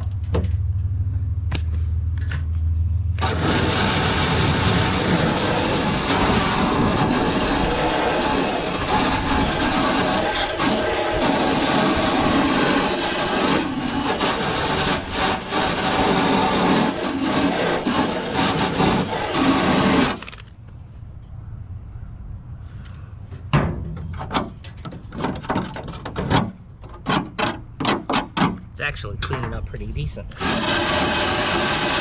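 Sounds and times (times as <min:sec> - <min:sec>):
scraper rasping on sheet metal: 0:03.2 - 0:20.3, 0:30.3 - 0:32.0
short scraping strokes: 0:03.2 - 0:20.4.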